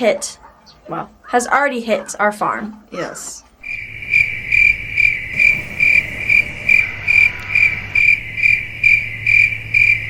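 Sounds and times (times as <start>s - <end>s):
crickets chirping: 3.6s - 10.0s
low hum: 3.6s - 10.0s.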